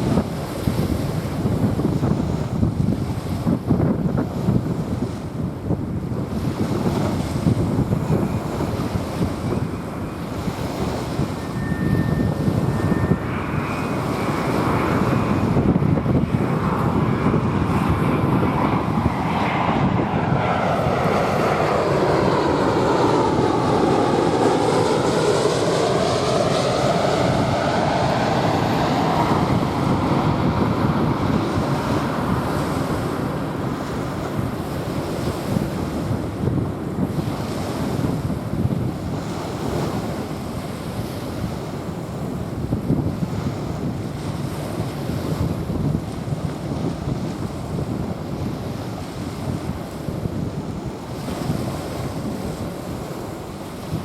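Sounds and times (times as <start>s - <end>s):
jet airliner passing overhead: 0.0s - 54.0s
wind on microphone: 0.0s - 54.0s.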